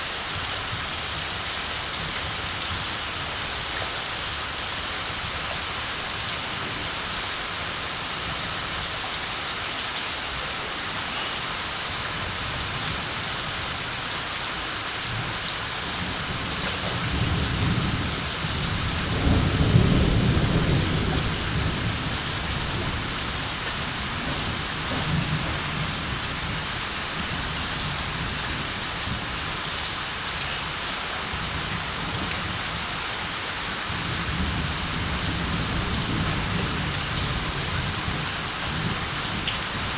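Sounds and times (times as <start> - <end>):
steady rain falling: 0.0 - 39.9
distant thunder rumbling: 17.1 - 26.7.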